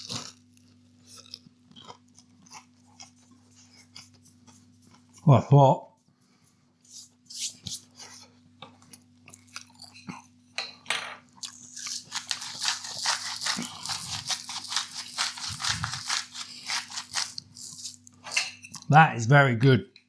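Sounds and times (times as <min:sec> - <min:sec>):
chewing crunchy breaded fish: 0:00.0 - 0:05.3, 0:07.6 - 0:10.4, 0:11.2 - 0:18.9.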